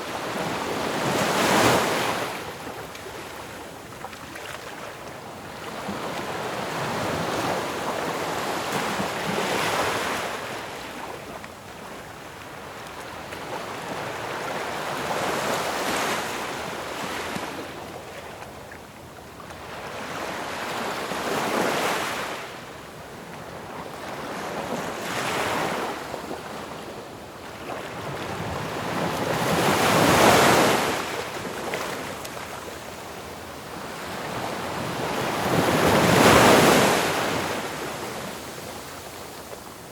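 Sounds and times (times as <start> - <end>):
ocean waves breaking on shore: 23.6 - 39.9.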